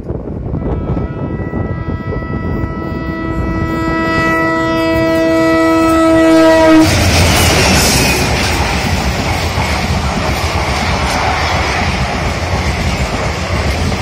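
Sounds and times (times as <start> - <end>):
locomotive horn long blast: 0.5 - 7.0
train wheels clattering over rails: 6.8 - 14.0.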